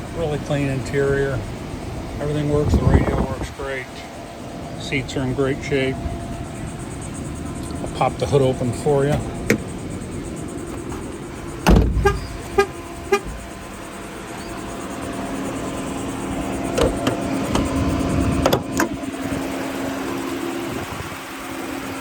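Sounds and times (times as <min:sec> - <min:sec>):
steady low hum: 0:00.0 - 0:22.0
heavy hood clunk: 0:09.0 - 0:14.7, 0:16.6 - 0:19.0.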